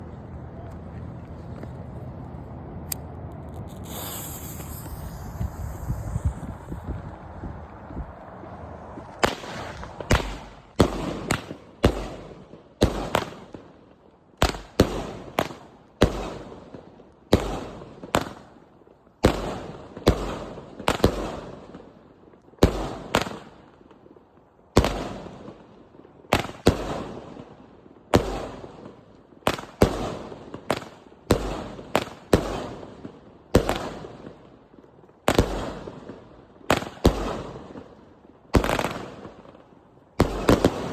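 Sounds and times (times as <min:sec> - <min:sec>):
firework bangs with echo: 0:09.0 - 0:13.6, 0:14.4 - 0:18.5, 0:28.1 - 0:34.4, 0:35.3 - 0:39.6, 0:40.2 - 0:40.9.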